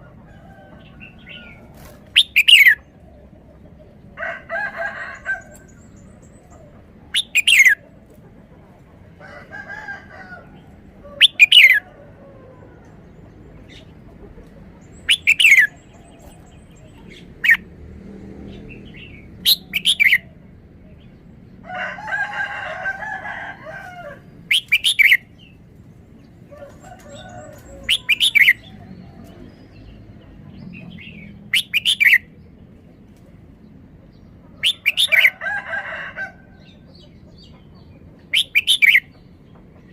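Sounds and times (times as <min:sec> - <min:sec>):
other birds calling: 0:00.0 - 0:39.9
bulbul singing: 0:01.0 - 0:02.8, 0:05.4 - 0:07.8, 0:11.1 - 0:11.8, 0:14.8 - 0:17.7, 0:18.6 - 0:21.0, 0:24.4 - 0:25.6, 0:27.4 - 0:32.6, 0:34.6 - 0:35.3, 0:37.0 - 0:39.4.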